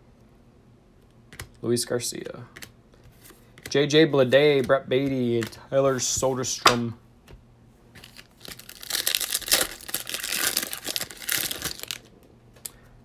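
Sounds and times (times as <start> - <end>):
foil wrapper crinkling: 8.0 - 12.1.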